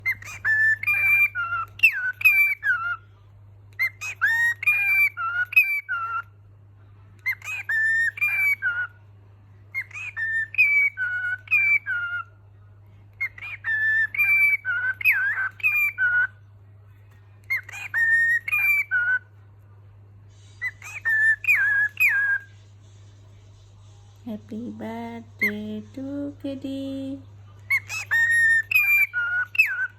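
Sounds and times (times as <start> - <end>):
cockatiel whistling a tune: 0.0 - 3.0, 3.7 - 6.3, 7.2 - 8.9, 9.7 - 12.3, 13.1 - 16.4, 17.4 - 19.3, 20.6 - 22.5, 27.7 - 29.9
faint low hum: 0.0 - 29.9.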